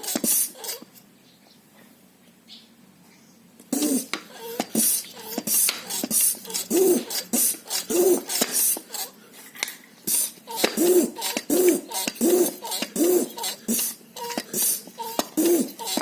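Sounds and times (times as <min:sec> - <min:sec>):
hand pump hissing strokes: 0:00.0 - 0:00.9, 0:03.7 - 0:09.2, 0:10.0 - 0:16.0.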